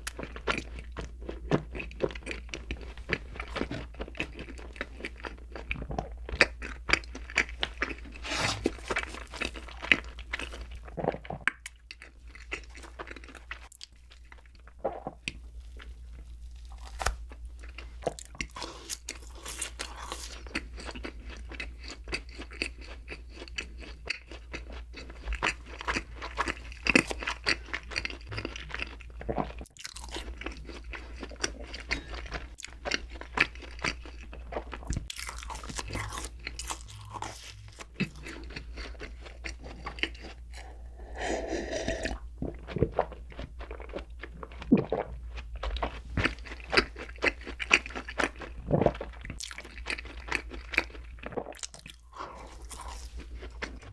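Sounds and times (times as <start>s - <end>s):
crunchy chewing and biting: 0.0s - 53.9s.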